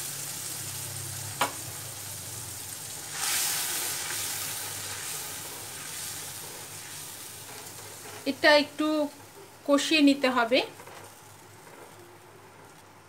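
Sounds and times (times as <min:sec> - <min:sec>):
paste sizzling in hot oil: 0:00.0 - 0:13.0
spatula stirring: 0:03.0 - 0:09.5, 0:10.2 - 0:13.0.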